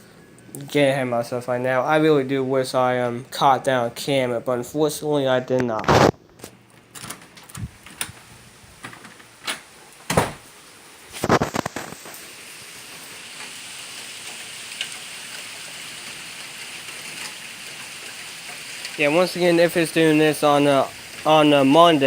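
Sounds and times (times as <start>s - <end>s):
heavy rain hiss: 7.6s - 22.0s.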